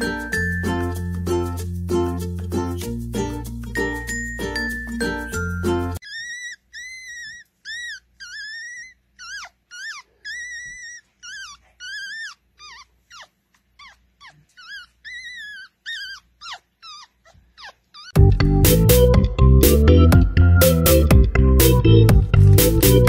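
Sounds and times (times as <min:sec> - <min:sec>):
puppy squealing: 0:06.0 - 0:18.2.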